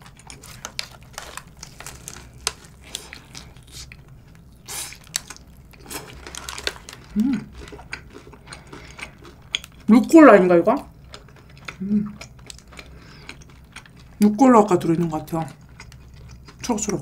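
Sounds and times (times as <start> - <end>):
person chewing a burger: 0.0 - 9.9, 10.9 - 14.2, 15.6 - 17.0
person humming: 7.1 - 7.5, 11.8 - 12.2.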